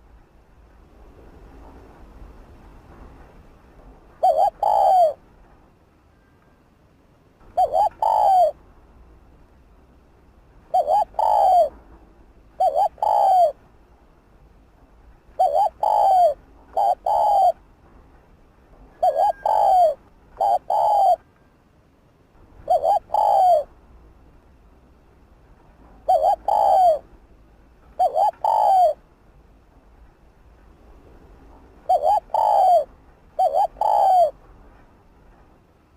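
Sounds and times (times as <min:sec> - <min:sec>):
dove cooing: 0:04.2 - 0:05.2, 0:07.5 - 0:08.6, 0:10.7 - 0:11.8, 0:12.6 - 0:13.6, 0:15.4 - 0:17.6, 0:19.0 - 0:21.3, 0:22.6 - 0:23.7, 0:26.0 - 0:27.1, 0:28.0 - 0:29.0, 0:31.9 - 0:34.4.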